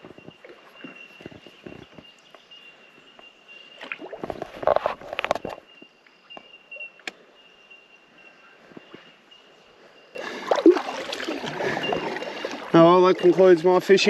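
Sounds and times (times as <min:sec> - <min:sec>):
birds ringing tink calls: 0:00.0 - 0:14.0.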